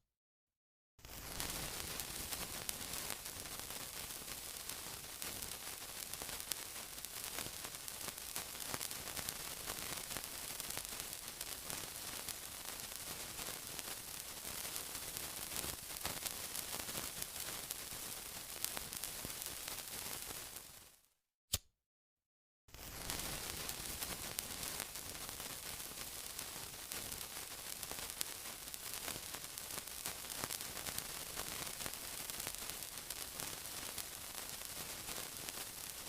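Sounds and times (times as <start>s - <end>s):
sizzling hiss with crackles: 1.0s - 21.1s, 22.7s - 36.0s.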